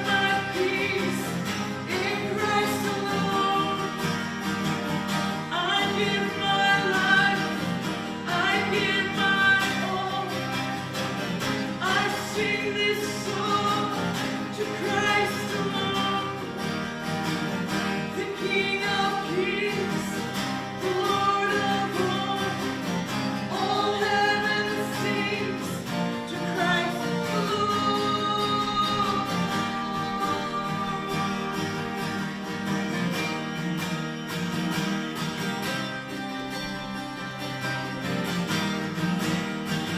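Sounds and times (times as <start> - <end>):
group singing a hymn: 0.0 - 4.2, 5.4 - 10.6, 11.6 - 16.7, 18.0 - 32.6
guitar accompaniment: 0.0 - 39.9.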